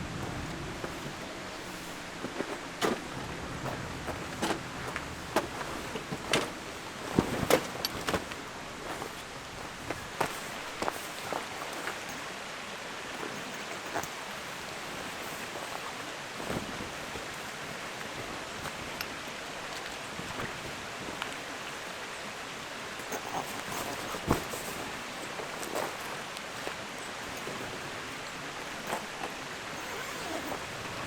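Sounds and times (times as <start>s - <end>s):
steady rushing ambience: 0.0s - 7.0s.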